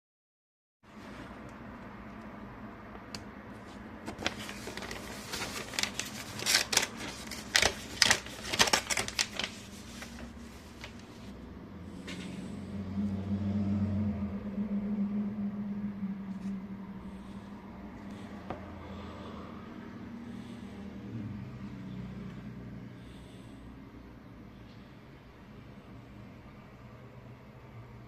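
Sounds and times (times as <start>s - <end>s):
low steady hum: 0.9s - 28.0s
envelope paper crackling: 4.0s - 11.3s.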